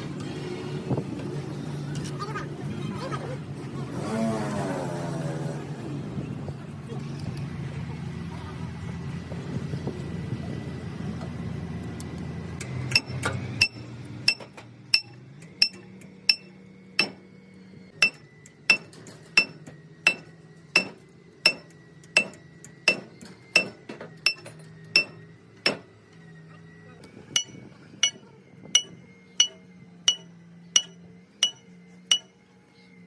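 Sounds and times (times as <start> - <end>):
low engine hum: 0.0 - 33.0
hammer striking steel: 12.9 - 17.4, 18.0 - 25.9, 27.4 - 32.4.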